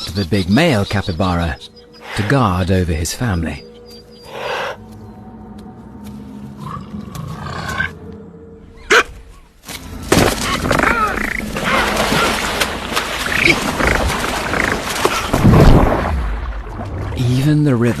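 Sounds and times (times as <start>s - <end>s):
noisy animal scramble: 0.0s - 4.9s, 6.5s - 8.0s, 10.4s - 15.4s
animal calls: 0.0s - 5.3s, 10.4s - 15.3s.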